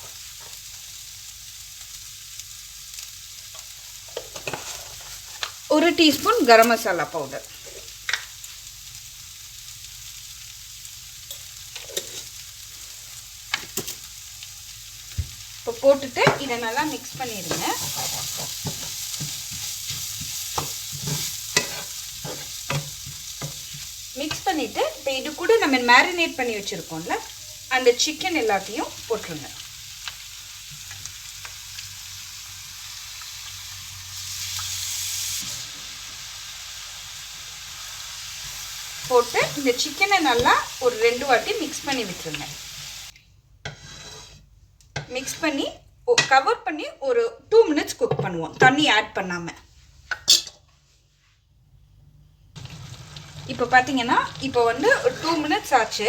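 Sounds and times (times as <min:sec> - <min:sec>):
masala sizzling in oil: 0:00.0 - 0:46.6, 0:52.4 - 0:56.0
spoon knocking against pan: 0:16.2 - 0:16.5.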